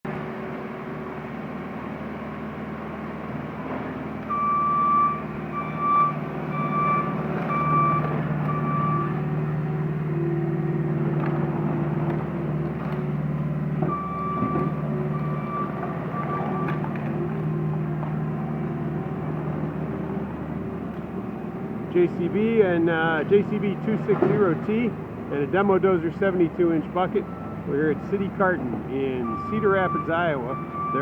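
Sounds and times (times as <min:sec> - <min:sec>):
diesel engine running: 0:00.0 - 0:31.0
reversing alarm beeping: 0:04.3 - 0:09.4, 0:13.9 - 0:17.0, 0:25.8 - 0:31.0.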